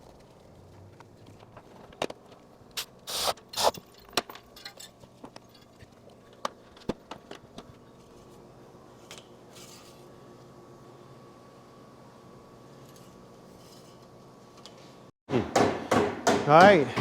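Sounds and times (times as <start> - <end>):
tools and metal parts clinking: 3.6 - 6.0.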